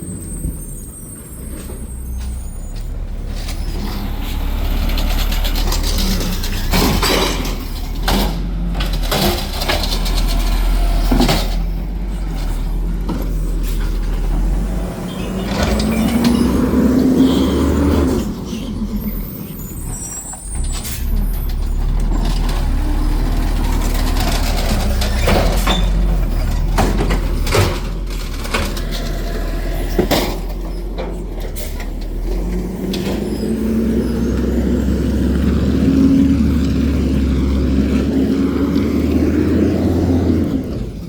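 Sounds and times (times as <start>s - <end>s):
garbage truck diesel engine: 0.0s - 41.0s
sharp metal clanks and knocks: 5.2s - 11.7s.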